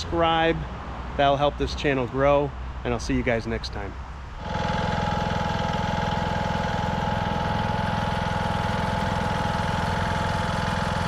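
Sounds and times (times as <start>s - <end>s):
lawn tractor engine running: 3.7s - 11.0s.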